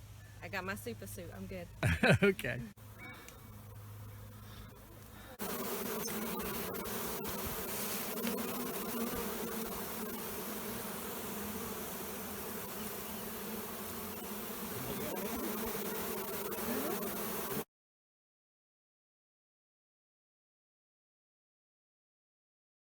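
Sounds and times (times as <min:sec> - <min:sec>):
bees buzzing: 0:01.8 - 0:17.6.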